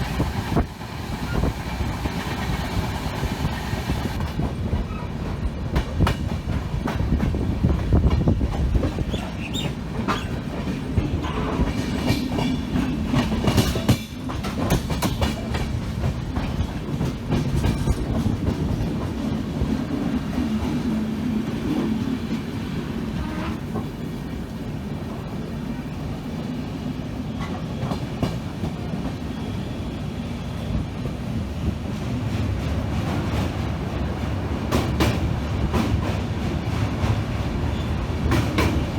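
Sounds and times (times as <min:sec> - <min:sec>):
train rumble: 0:00.0 - 0:38.9
wheels clacking over rail joints: 0:04.1 - 0:19.2.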